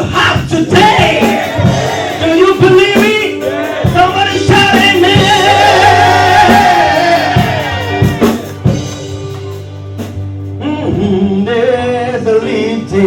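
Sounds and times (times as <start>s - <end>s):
worship band music: 0.0s - 13.0s
drum hits: 0.2s - 9.5s.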